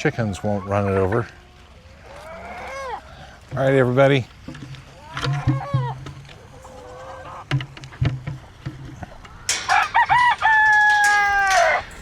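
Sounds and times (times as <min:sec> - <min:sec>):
rooster crowing: 0:09.5 - 0:11.9.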